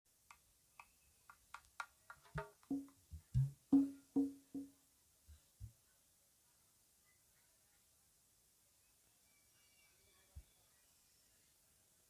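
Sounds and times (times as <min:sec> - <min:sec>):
deep bass drum thumps: 0:02.4 - 0:04.7
drum strokes: 0:02.4 - 0:04.7.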